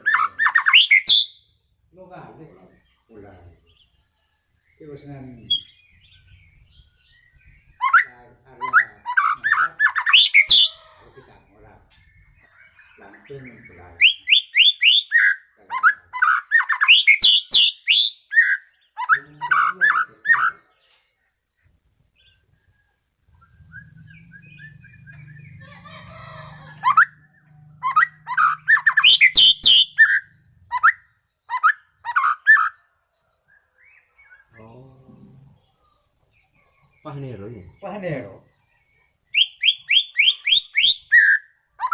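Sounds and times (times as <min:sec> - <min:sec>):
bird singing whistled phrases: 0:00.0 - 0:01.5, 0:05.5 - 0:10.8, 0:12.1 - 0:20.7, 0:23.3 - 0:25.7, 0:26.3 - 0:32.8, 0:39.3 - 0:41.9
faint low hum: 0:20.8 - 0:29.0.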